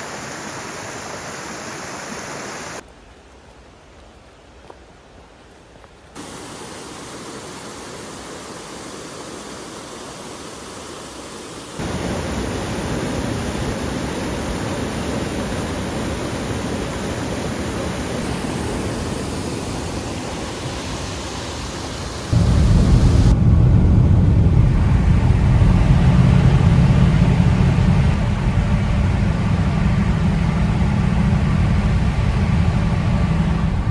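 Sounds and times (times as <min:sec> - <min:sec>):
waterfall rushing: 0:00.0 - 0:02.8, 0:06.2 - 0:23.3.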